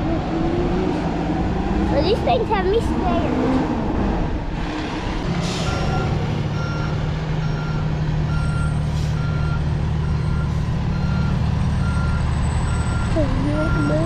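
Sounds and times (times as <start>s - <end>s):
diesel engine running: 0.0s - 14.0s
truck reversing alarm beeping: 5.6s - 14.0s.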